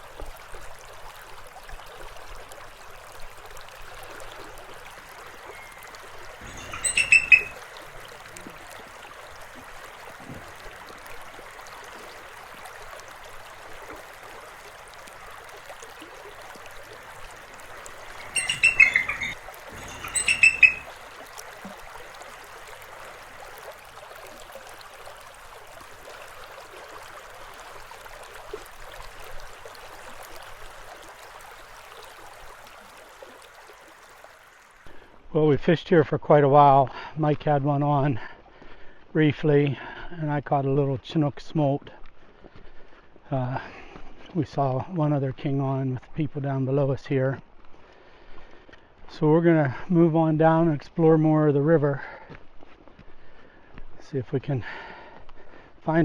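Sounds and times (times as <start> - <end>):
river water flowing: 0.0 - 35.2.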